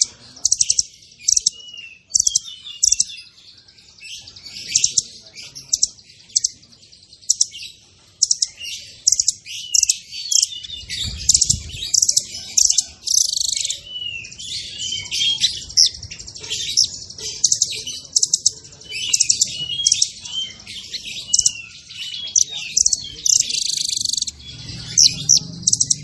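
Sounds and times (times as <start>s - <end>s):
songbird singing trills: 0.0s - 26.0s
low thud: 10.8s - 12.0s.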